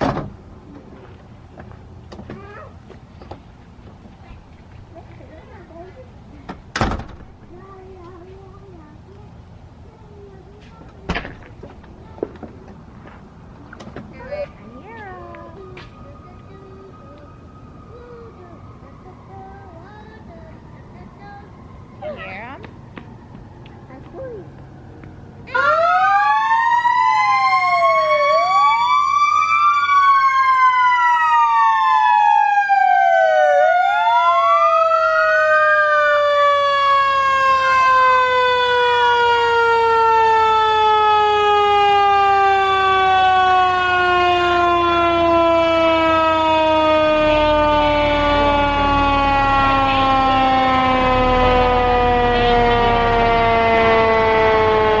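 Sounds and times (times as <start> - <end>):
fire truck siren wailing: 12.0 - 55.0.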